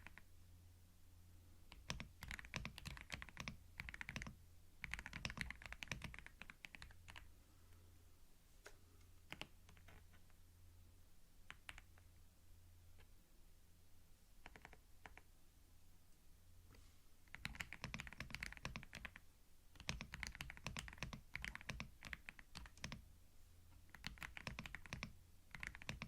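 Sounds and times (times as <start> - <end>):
computer keyboard typing: 0.0 - 0.3, 1.7 - 7.3, 9.3 - 10.3, 11.5 - 12.0, 14.4 - 15.3, 17.3 - 19.2, 19.8 - 23.0, 23.9 - 26.0
faint low hum: 0.0 - 26.0.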